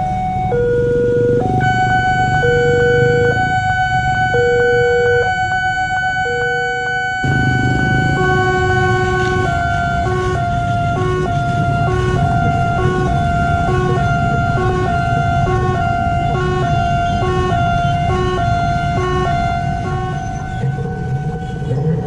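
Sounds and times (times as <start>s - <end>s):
level crossing warning alarm: 0.0s - 22.0s
low rumble: 7.2s - 17.1s.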